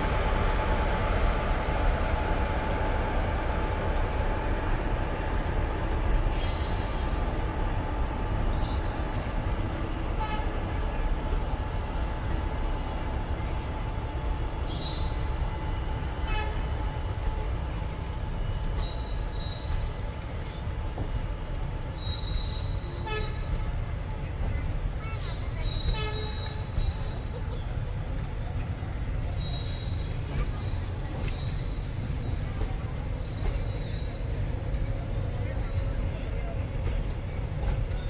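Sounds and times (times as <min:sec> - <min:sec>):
train wheels rumbling on track: 0:00.0 - 0:38.0
high-pitched wheel squeals: 0:22.0 - 0:23.5.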